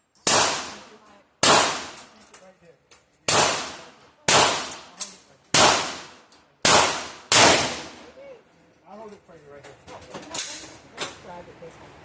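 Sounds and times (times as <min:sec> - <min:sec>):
gunshots: 0:00.3 - 0:02.0, 0:03.3 - 0:04.9, 0:05.5 - 0:08.0.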